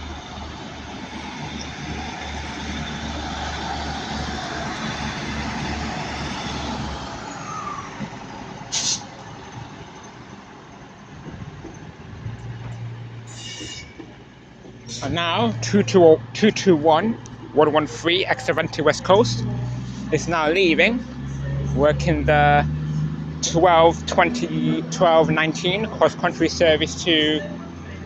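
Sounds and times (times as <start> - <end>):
train rolling noise: 0.0 - 20.3
diesel train engines pulsing: 0.0 - 28.0
short sharp hiss: 8.7 - 9.1.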